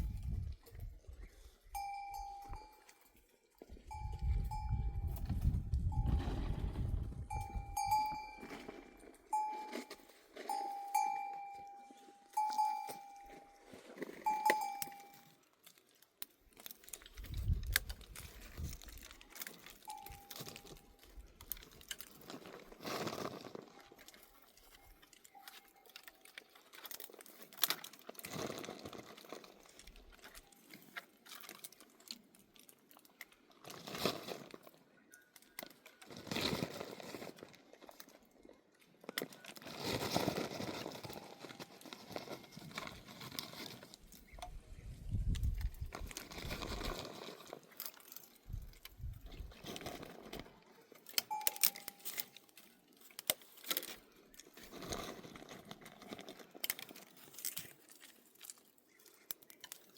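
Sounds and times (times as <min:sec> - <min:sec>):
faint rustling and crunching: 0:00.0 - 0:59.9
livestock bell ringing: 0:01.8 - 0:15.4, 0:19.8 - 0:21.0, 0:51.3 - 0:52.4.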